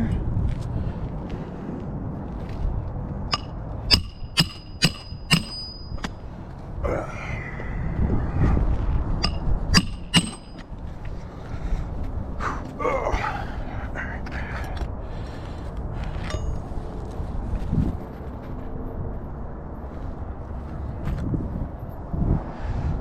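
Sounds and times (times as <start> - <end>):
hammer striking roofing nails: 3.3 - 5.7, 9.2 - 10.6.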